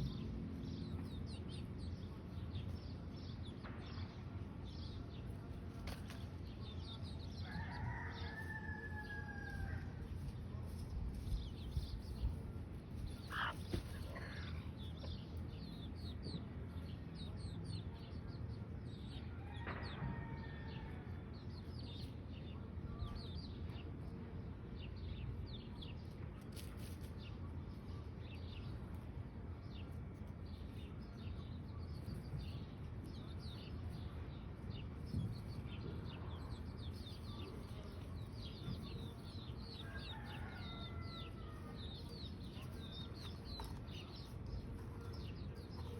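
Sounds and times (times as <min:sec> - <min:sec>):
low steady rumble: 0:00.0 - 0:07.4
chicks peeping: 0:00.0 - 0:20.1, 0:21.1 - 0:45.9.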